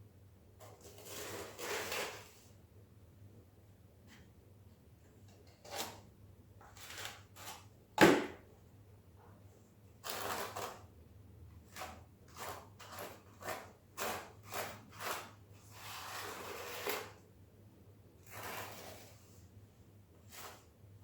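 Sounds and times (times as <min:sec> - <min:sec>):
sharp knock: 0:08.0 - 0:08.4
scraper combing tile adhesive: 0:11.7 - 0:17.2, 0:18.2 - 0:19.4.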